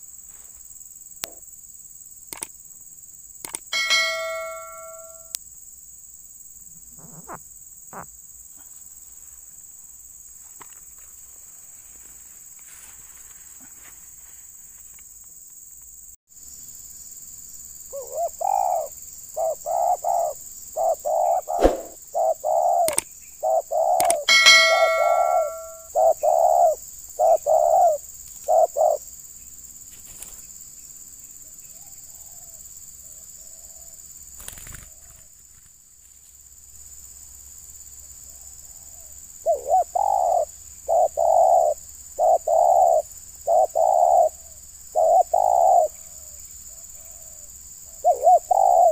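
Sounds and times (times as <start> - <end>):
metallic ding: 3.8 - 5.3, 24.3 - 25.9
dove cooing: 17.9 - 29.0, 39.4 - 46.0, 47.0 - 48.9.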